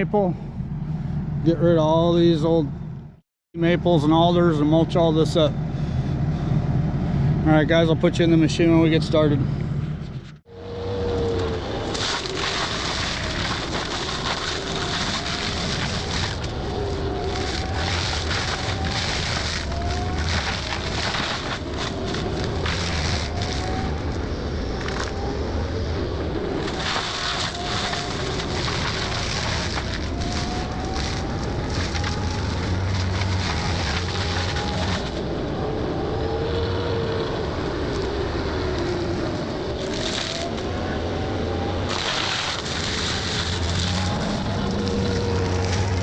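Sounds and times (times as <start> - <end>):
mulcher whine: 0.0 - 46.0
wood cracking and splintering: 10.8 - 25.3, 26.4 - 35.3, 36.2 - 40.9, 41.8 - 46.0
excavator engine under load: 26.3 - 46.0.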